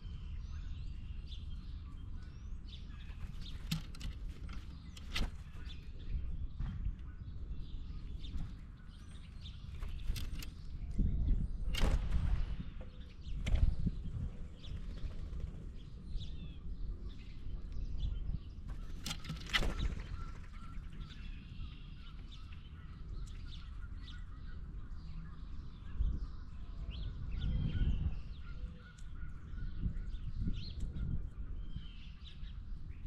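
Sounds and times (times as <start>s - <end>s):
birds calling: 0.0s - 32.8s.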